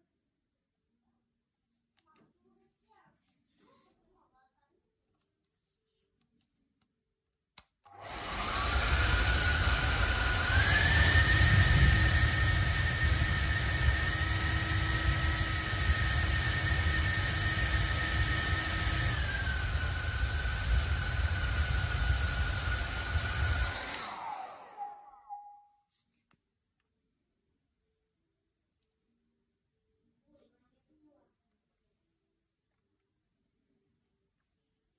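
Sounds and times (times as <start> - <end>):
hair dryer running: 7.9 - 25.6.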